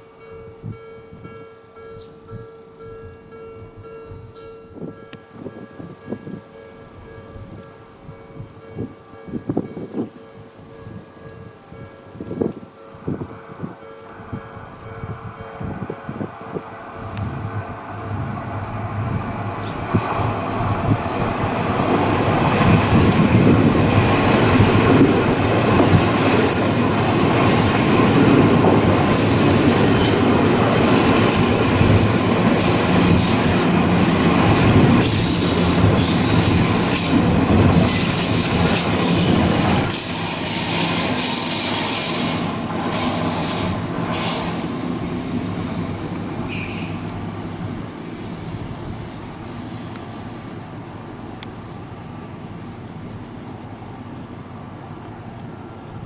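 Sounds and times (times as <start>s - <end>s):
electric train passing: 0.0s - 56.0s
high-pitched wheel squeal: 29.1s - 47.4s.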